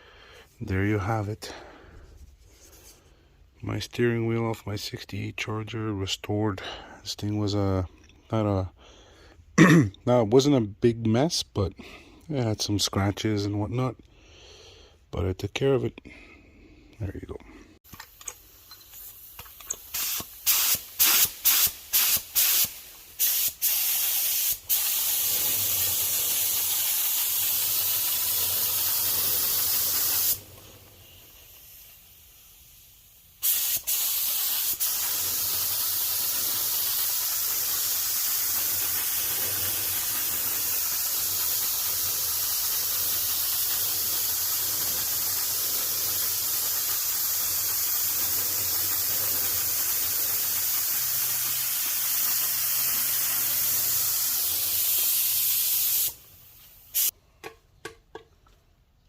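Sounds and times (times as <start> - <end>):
paint spraying hiss: 17.9 - 57.2.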